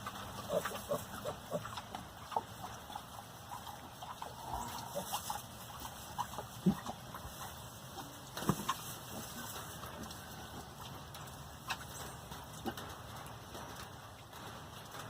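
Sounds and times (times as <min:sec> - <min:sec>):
pigs grunting and squeaking: 0:00.0 - 0:10.9.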